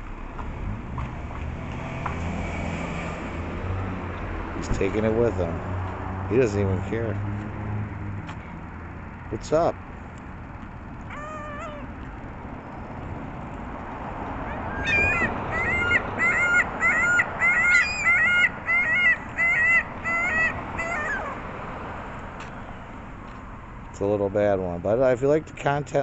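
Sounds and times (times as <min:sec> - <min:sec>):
gull calling: 0:11.1 - 0:12.0, 0:14.4 - 0:21.5.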